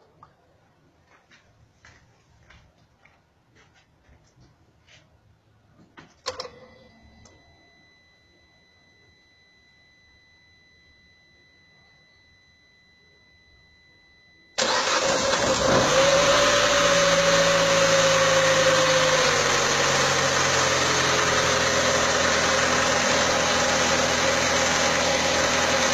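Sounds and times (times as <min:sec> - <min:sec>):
faint beep tone: 0:06.3 - 0:14.6
car engine starting and idling: 0:14.6 - 0:25.9.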